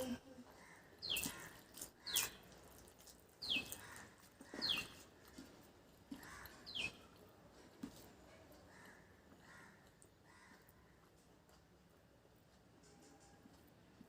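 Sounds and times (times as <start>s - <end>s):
bird chirping: 1.0s - 2.5s, 3.4s - 5.1s, 6.4s - 7.2s.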